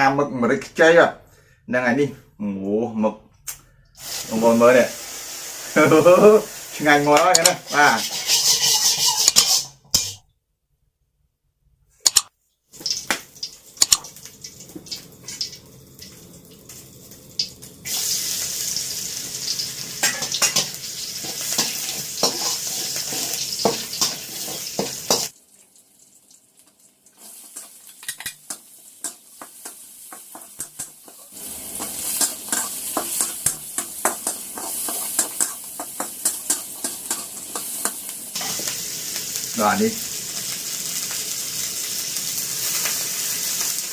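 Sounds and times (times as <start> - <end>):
food sizzling in a pan: 4.0 - 10.2, 12.7 - 43.9
utensil scraping a pan: 7.4 - 10.2, 20.0 - 25.3, 27.5 - 38.7.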